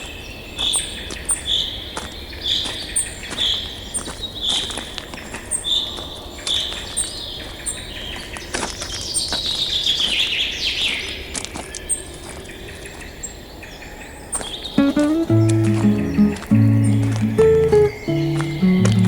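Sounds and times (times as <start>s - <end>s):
faint high bird chirps: 14.3s - 19.0s
birds whistling: 14.8s - 19.0s
outdoor background hiss: 14.8s - 19.0s.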